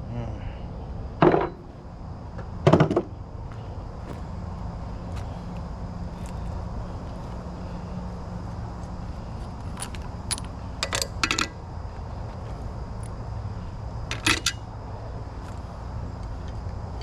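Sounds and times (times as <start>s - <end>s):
steady low hum: 0.0s - 17.0s
metal tools clinking: 9.8s - 11.5s, 14.1s - 14.6s.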